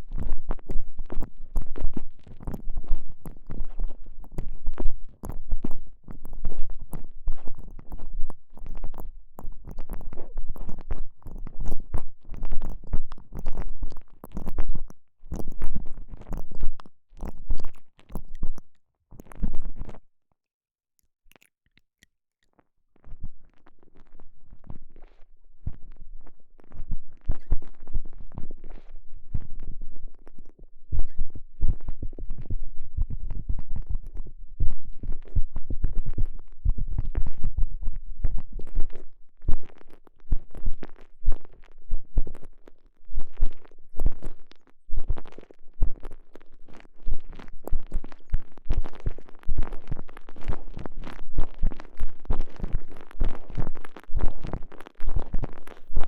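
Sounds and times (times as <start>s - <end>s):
muffled squishing and rubbing: 0.0s - 16.6s.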